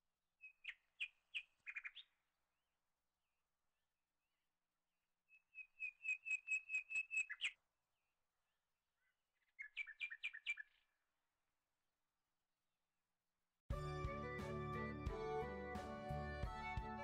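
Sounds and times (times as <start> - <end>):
small bird chirping: 0.4 - 2.2, 5.3 - 7.6, 9.4 - 10.9.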